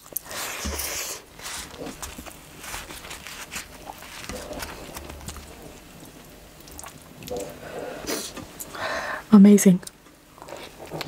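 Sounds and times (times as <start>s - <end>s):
bread being torn: 0.0s - 7.5s
chewing and wet mouth clicks: 6.6s - 7.6s.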